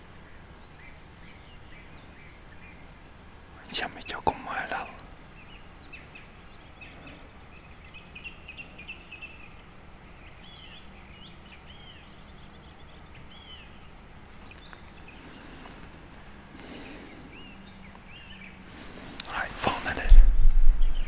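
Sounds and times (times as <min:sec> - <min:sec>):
birds chirping: 0:00.0 - 0:21.0
low background noise: 0:00.0 - 0:21.0.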